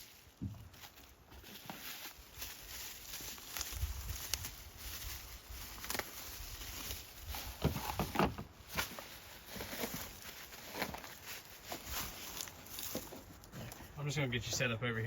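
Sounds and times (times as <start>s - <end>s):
knocks and rustling: 7.4s - 11.1s.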